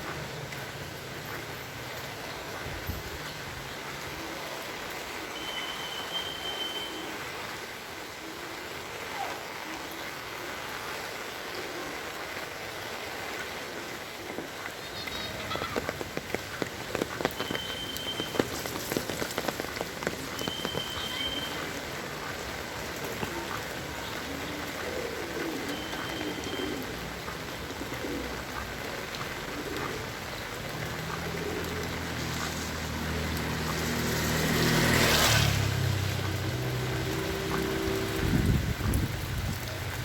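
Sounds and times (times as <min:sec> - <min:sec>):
heavy rain falling: 0:00.0 - 0:40.0
sharp drips: 0:14.4 - 0:27.9
vehicle engine passing: 0:30.8 - 0:38.6.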